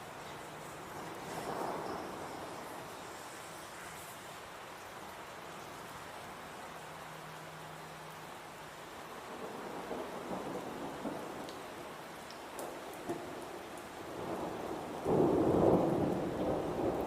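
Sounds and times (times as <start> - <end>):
rain falling: 0.0 - 17.0
thunder rumbling: 0.4 - 3.6, 9.3 - 11.9, 12.6 - 17.0.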